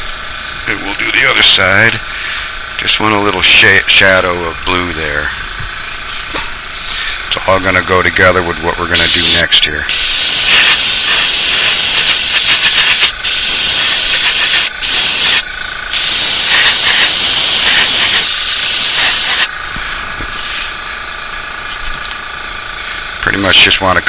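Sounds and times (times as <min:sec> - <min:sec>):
airbrush spraying hiss: 0:09.0 - 0:19.5.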